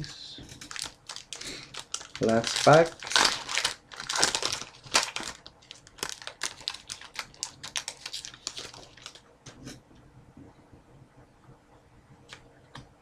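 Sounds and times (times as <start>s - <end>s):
foil wrapper crinkling and tearing: 0.6s - 9.2s.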